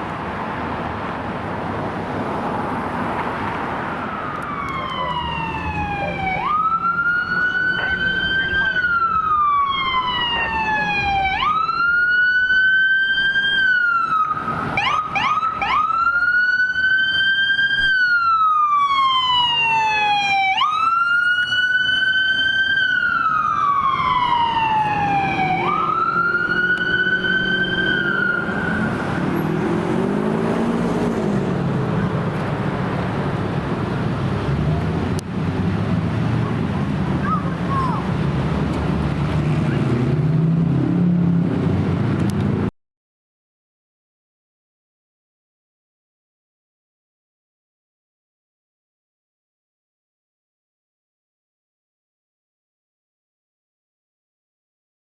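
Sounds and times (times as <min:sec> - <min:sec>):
passing vehicles: 0:00.0 - 0:42.7
siren wailing: 0:03.8 - 0:31.1
siren chirps: 0:03.9 - 0:30.2.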